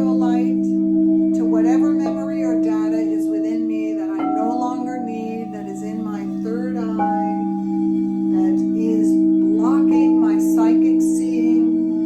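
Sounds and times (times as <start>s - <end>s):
person singing wordlessly: 4.2s - 7.4s
singing bowls ringing: 4.2s - 9.4s.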